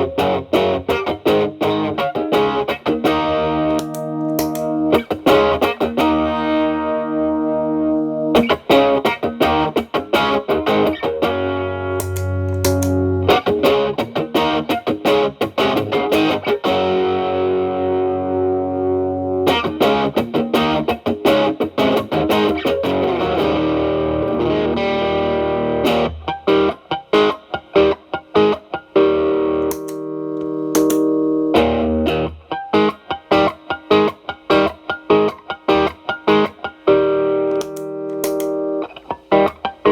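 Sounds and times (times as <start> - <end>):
choppy strummed guitar strokes: 0.0 - 39.9
overdriven electric guitar chords: 0.0 - 39.9.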